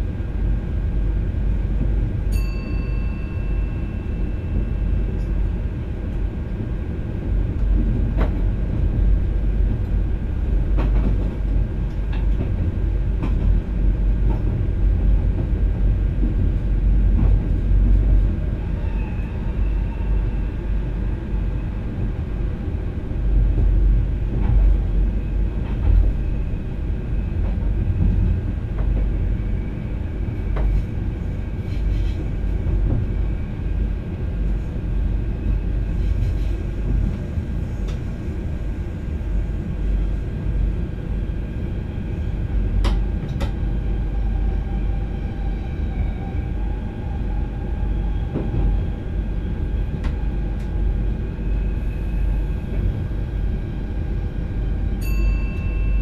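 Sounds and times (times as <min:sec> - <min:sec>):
electric train rumble: 0:00.0 - 0:56.0.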